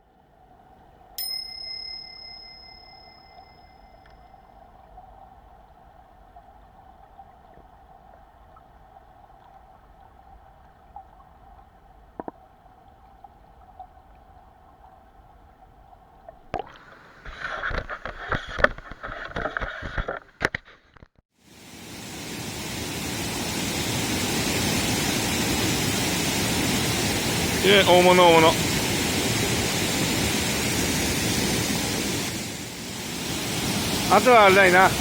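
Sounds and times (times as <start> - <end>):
stream rushing: 21.5 - 35.0.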